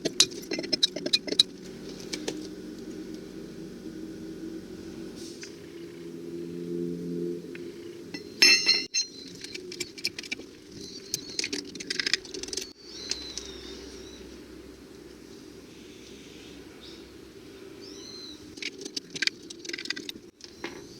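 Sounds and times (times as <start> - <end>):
metal hand tools clinking: 0.0 - 1.5, 8.2 - 10.4.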